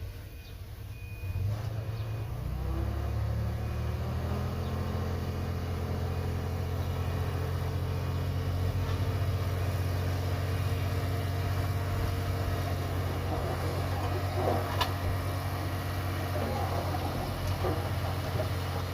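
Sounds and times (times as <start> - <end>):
heavy diesel engine droning: 0.0 - 18.9.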